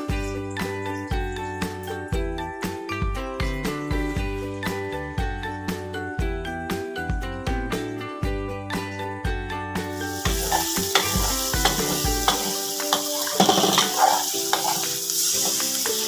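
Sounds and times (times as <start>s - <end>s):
spice paste sizzling in a wok: 0.0s - 2.1s, 3.7s - 4.9s, 9.8s - 16.0s
background music: 0.0s - 16.0s.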